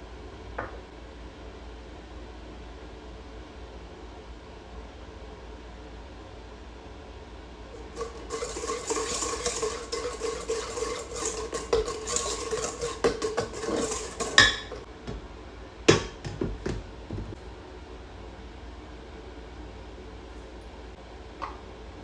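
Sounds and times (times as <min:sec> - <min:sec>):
utensil clinking against bowl: 0:07.8 - 0:15.3, 0:15.9 - 0:17.4
utensils knocking on dishes: 0:07.8 - 0:15.3, 0:15.9 - 0:17.4.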